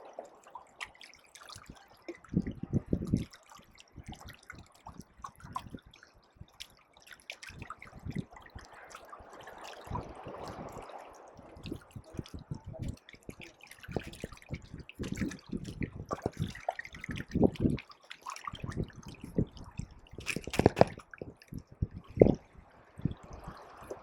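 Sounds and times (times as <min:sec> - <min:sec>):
seawater splashing at shoreline: 0:07.2 - 0:18.7.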